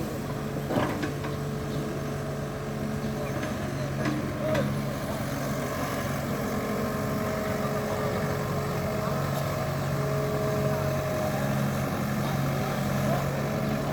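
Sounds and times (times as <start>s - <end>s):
diesel engine droning: 0.0s - 13.9s.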